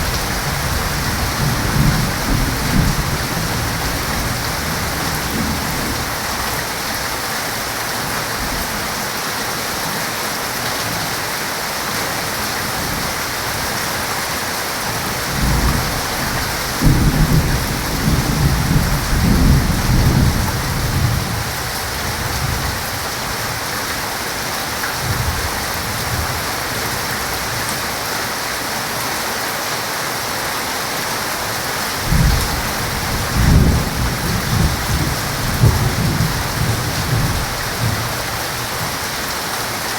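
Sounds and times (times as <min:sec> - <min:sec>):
low rolling thunder: 0:00.0 - 0:06.4, 0:15.3 - 0:22.8, 0:32.0 - 0:38.8
heavy rain falling: 0:00.0 - 0:39.9.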